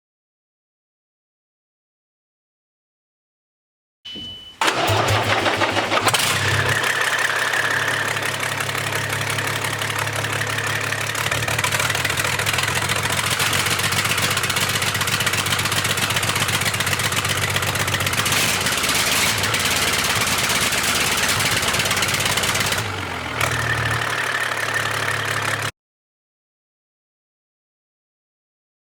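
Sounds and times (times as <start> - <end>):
engine running loudly and raggedly: 4.6 - 25.7.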